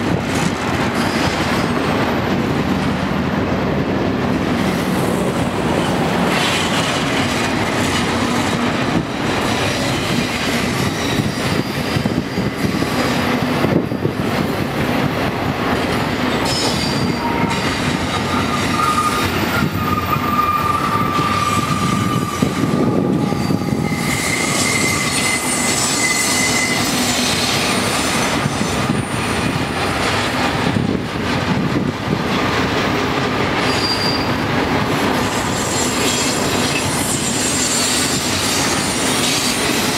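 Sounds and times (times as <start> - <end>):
freight train wheels rumbling: 0.0 - 39.9
high wheel squeals: 16.4 - 29.5, 33.7 - 34.4, 35.2 - 39.9.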